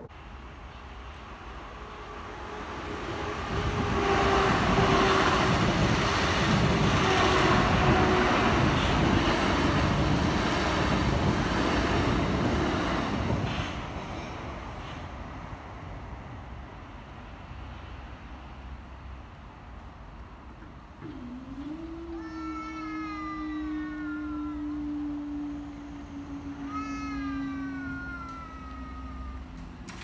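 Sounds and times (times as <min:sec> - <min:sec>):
electric train passing: 0:00.1 - 0:30.0.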